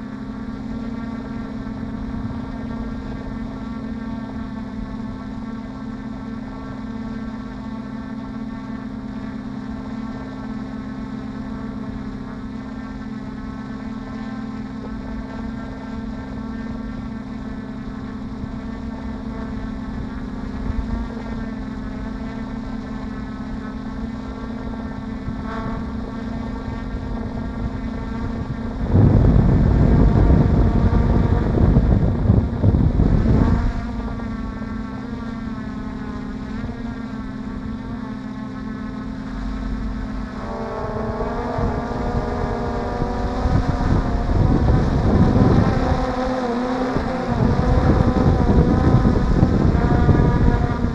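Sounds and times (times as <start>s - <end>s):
drone motors humming: 0.0s - 50.9s
wind buffeting microphone: 24.9s - 35.1s, 39.0s - 50.9s.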